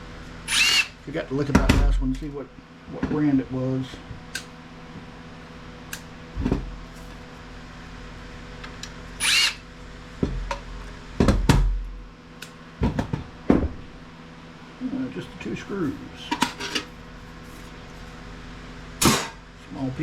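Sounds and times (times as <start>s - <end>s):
cordless drill running: 9.2s - 9.6s.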